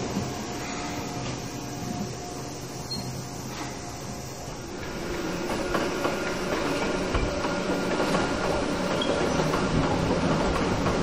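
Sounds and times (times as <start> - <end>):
train rumble: 0.0 - 11.0
train wheels clacking: 4.8 - 11.0.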